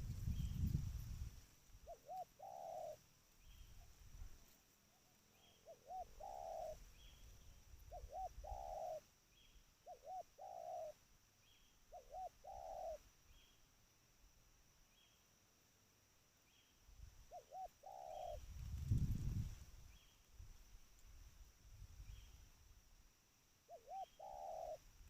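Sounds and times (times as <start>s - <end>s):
dove cooing: 1.8s - 3.1s, 5.4s - 7.2s, 7.8s - 9.1s, 9.8s - 11.0s, 11.9s - 13.0s, 17.3s - 18.4s, 23.7s - 24.9s.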